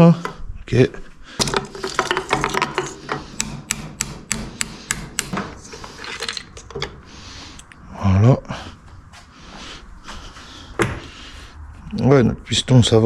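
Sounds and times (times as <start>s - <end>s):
metal scraping: 1.6s - 3.7s
metal tapping on piston: 3.4s - 5.4s.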